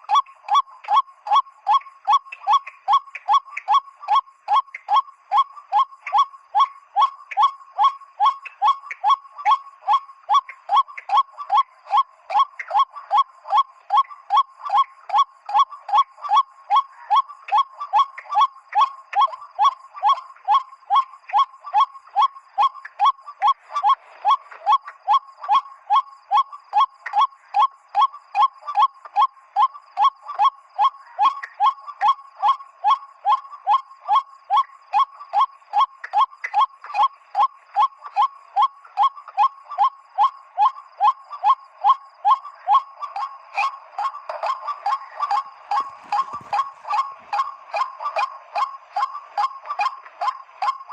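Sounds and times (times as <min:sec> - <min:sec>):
waterhen calls: 0:00.0 - 0:50.9.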